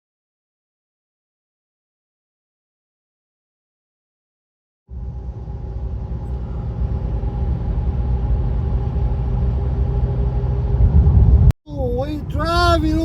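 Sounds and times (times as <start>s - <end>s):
car engine and road rumble: 4.9s - 13.0s.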